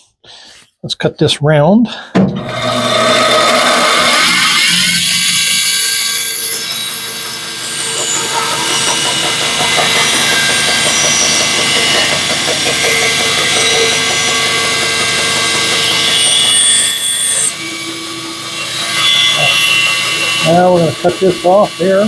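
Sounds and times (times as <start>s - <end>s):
bandsaw cutting wood: 2.4s - 22.0s.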